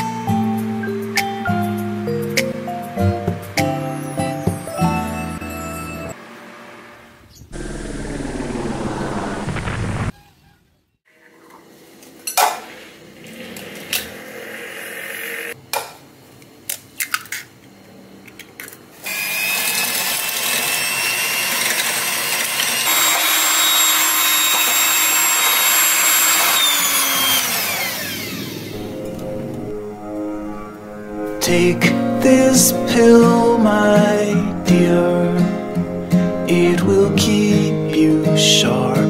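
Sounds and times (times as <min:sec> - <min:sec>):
electric blender whining: 0:19.0 - 0:29.2.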